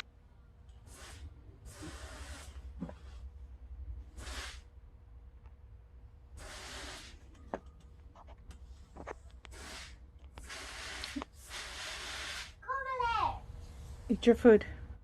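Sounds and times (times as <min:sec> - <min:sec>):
sprayer hissing: 0:00.8 - 0:02.6, 0:04.1 - 0:04.6, 0:06.4 - 0:07.2, 0:09.5 - 0:12.6.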